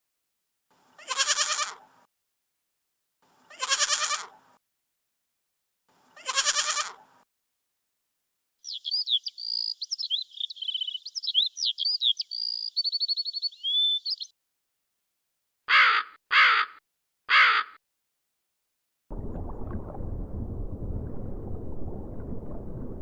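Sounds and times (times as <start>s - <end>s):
bird harsh calls: 8.6s - 14.3s, 15.7s - 17.8s
songbird whistles and trills: 8.6s - 14.3s.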